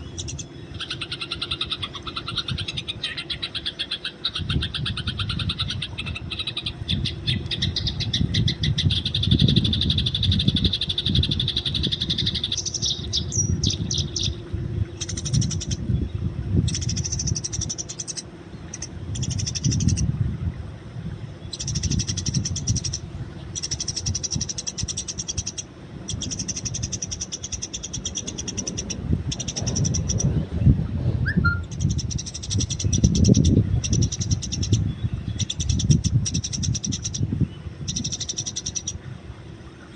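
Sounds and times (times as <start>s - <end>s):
sparrows chirping: 0.0s - 14.4s, 15.0s - 20.0s, 21.4s - 30.4s, 31.3s - 39.0s
low rumble: 28.2s - 32.1s.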